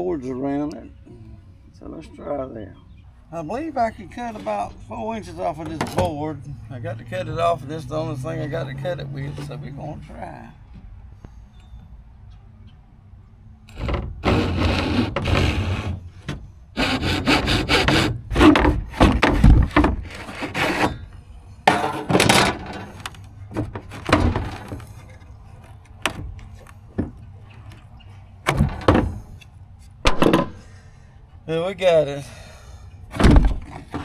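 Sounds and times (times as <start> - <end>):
saw cutting wooden board: 13.7 - 25.2.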